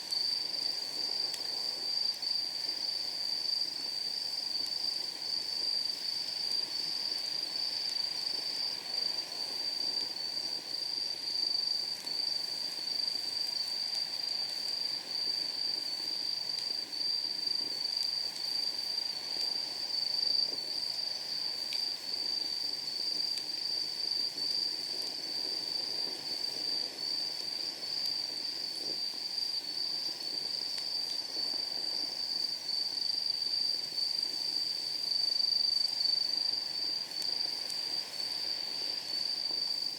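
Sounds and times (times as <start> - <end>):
night insects trilling: 0.0 - 39.9
wood fire crackling: 15.7 - 32.6, 36.8 - 39.9.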